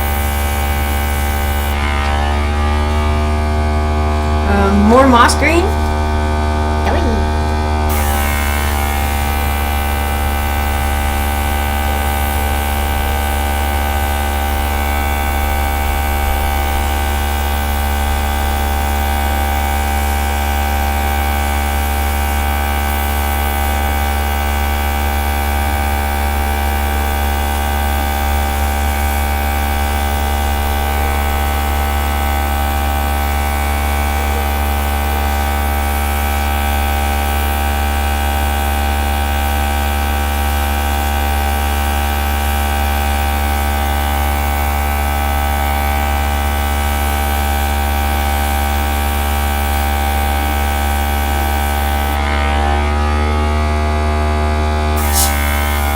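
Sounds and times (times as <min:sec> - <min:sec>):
air compressor humming: 0:00.0 - 0:55.9.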